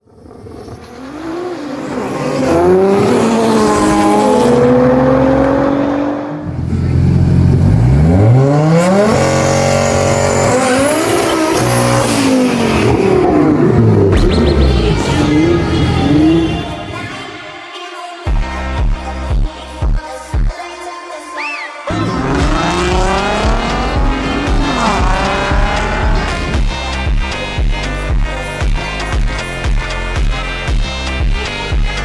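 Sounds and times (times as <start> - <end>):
car engines revving: 0.1 - 17.6, 21.9 - 27.0.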